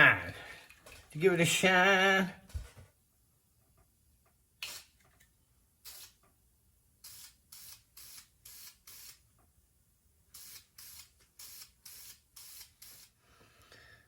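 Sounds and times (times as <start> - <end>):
short hissing spray bursts: 4.6 - 5.0, 5.8 - 6.2, 7.0 - 9.3, 10.3 - 13.2.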